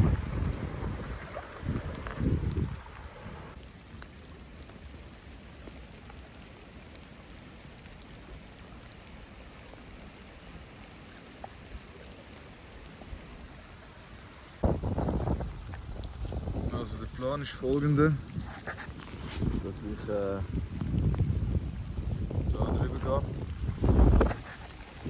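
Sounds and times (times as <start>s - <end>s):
wind buffeting microphone: 0.0s - 3.6s, 14.6s - 25.0s
steady rain: 0.0s - 25.0s.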